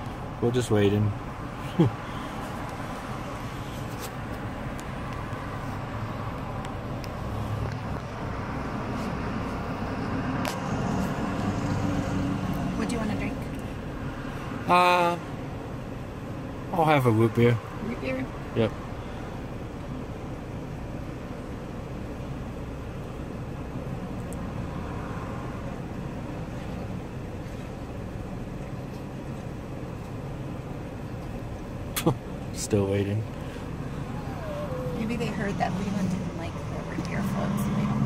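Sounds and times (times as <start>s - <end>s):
car engine idling: 25.6s - 38.0s.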